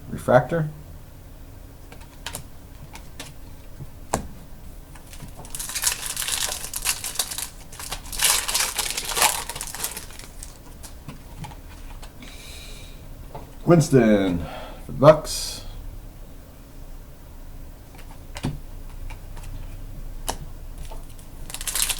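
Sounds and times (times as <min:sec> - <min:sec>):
cards rustling and sliding: 0:05.0 - 0:11.0.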